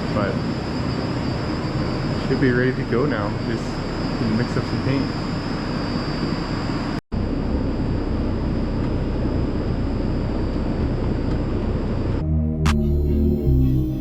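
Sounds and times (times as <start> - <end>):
faint high whine: 0.0 - 13.5
music: 12.2 - 14.0.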